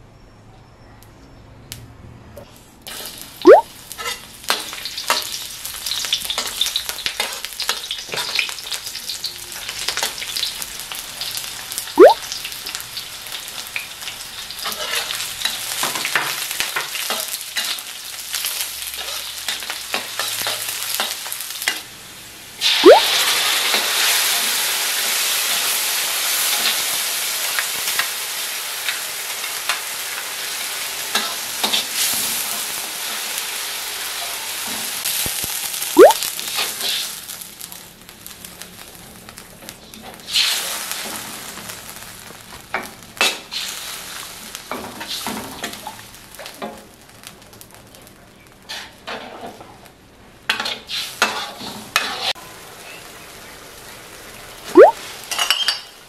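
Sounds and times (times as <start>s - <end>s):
liquid bubbling: 22.8s - 23.1s, 54.8s - 55.0s.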